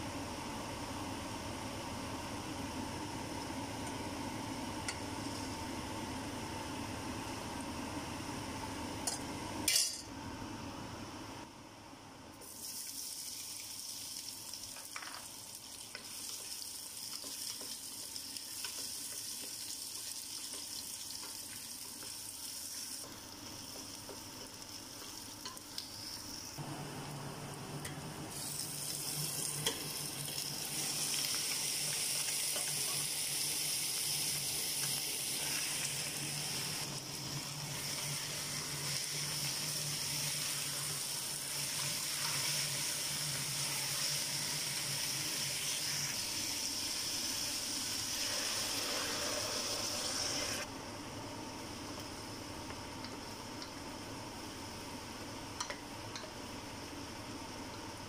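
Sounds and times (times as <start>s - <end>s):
food sizzling in hot oil: 12.4s - 26.6s, 28.3s - 50.7s.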